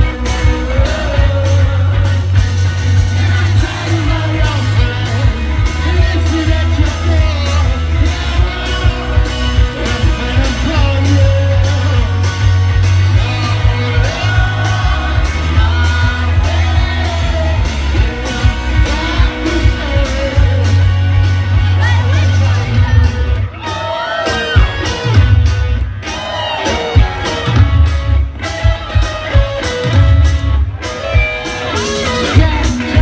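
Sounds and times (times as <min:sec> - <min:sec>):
person singing: 0:00.0 - 0:02.4, 0:03.0 - 0:25.2
live rock band: 0:00.0 - 0:33.0.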